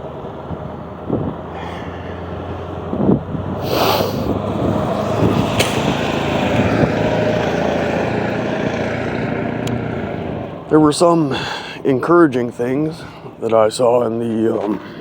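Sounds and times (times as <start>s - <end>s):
motor vehicle passing: 0.0s - 10.7s.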